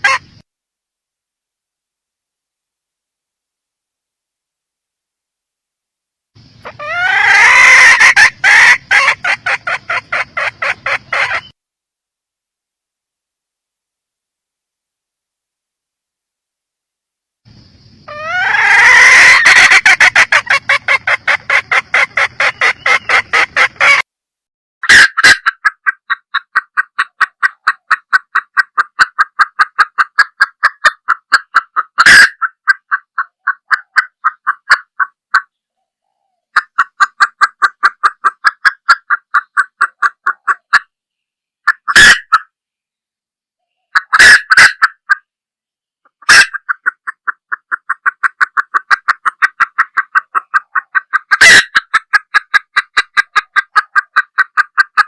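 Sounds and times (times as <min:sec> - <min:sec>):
hen clucking rapidly: 0:00.0 - 0:00.4, 0:06.4 - 0:11.6, 0:17.9 - 0:24.1, 0:24.8 - 0:40.9, 0:41.6 - 0:42.5, 0:43.8 - 0:45.3, 0:46.1 - 0:55.0.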